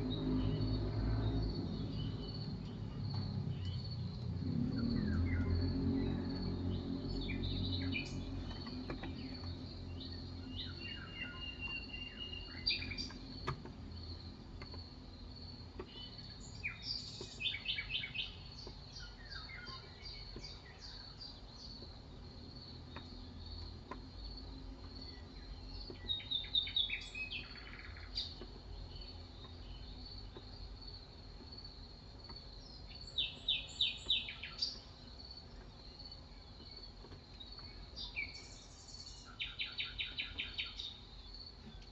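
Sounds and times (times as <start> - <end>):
birds chirping: 0.0 - 41.9.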